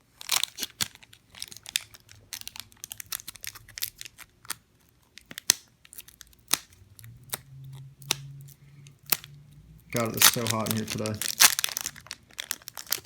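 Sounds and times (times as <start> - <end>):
wrapper crinkling and tearing: 0.0 - 6.7, 9.9 - 13.0.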